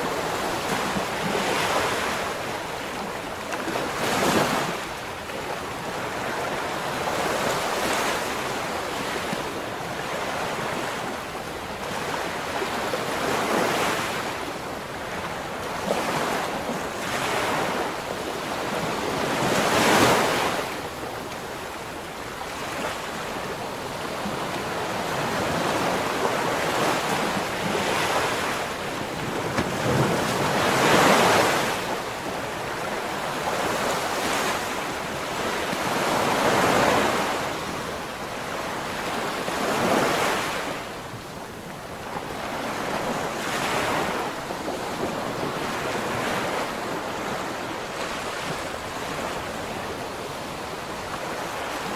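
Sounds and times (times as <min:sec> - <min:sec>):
ocean waves breaking on shore: 0:00.0 - 0:51.9.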